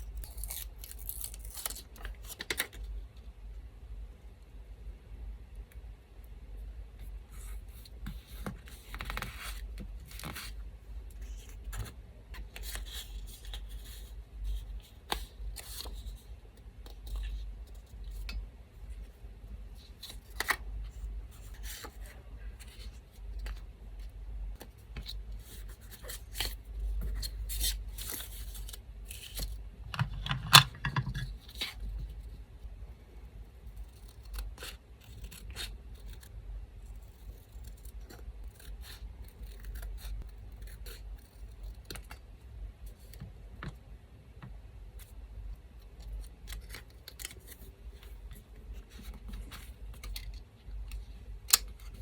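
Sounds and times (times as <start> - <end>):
scissors snipping paper: 0.2 - 2.6.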